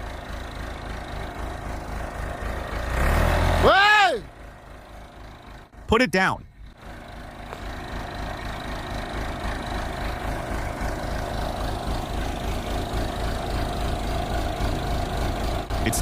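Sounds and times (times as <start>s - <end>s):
backhoe engine running: 0.0s - 16.0s.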